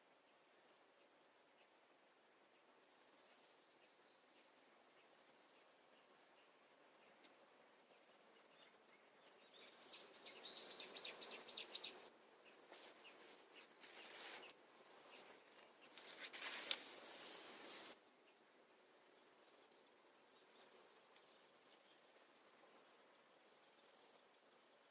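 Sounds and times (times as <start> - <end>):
faint outdoor background: 0.0 - 24.9
songbird singing: 0.0 - 24.9
wind or rustling noise: 9.5 - 18.0.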